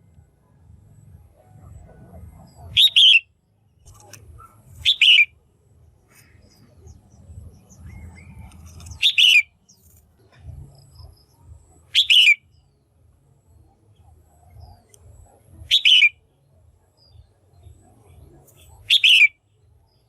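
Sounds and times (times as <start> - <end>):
faint low hum: 0.0 - 20.0
bulbul chattering calls: 2.0 - 3.3, 3.9 - 5.4, 6.0 - 10.0, 11.0 - 12.7, 14.1 - 16.3, 18.4 - 19.4.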